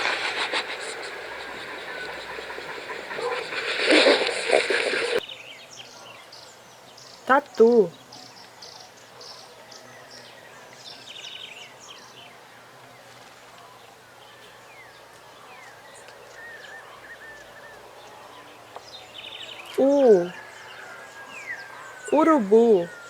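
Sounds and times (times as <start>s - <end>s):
bird trill: 0.0s - 5.2s, 18.9s - 23.0s
steady low hiss: 0.0s - 5.2s
birds chirping: 0.0s - 13.1s, 13.7s - 23.0s.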